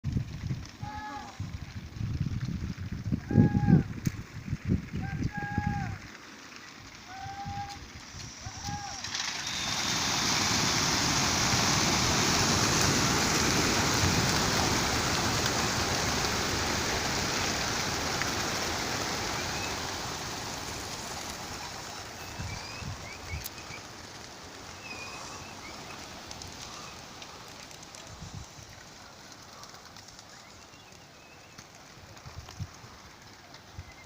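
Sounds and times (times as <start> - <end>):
pigeon wings flapping: 0.0 - 34.0.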